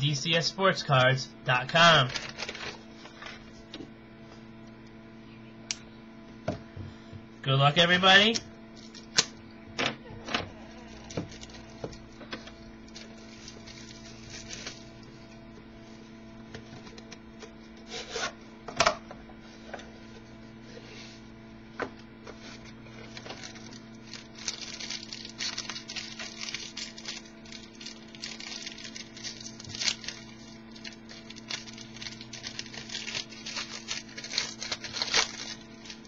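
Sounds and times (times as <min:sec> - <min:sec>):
low electrical hum: 0:00.0 - 0:36.0
wrapper crinkling and rustling: 0:02.0 - 0:02.8, 0:12.9 - 0:15.1, 0:23.0 - 0:36.0.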